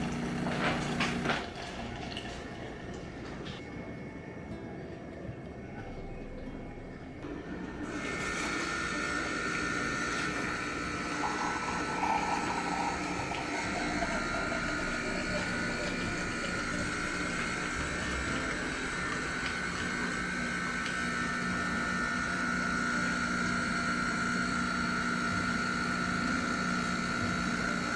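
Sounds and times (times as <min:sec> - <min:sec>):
coffee machine hum: 0:00.0 - 0:04.4, 0:05.6 - 0:27.9
liquid being pumped: 0:07.8 - 0:27.1.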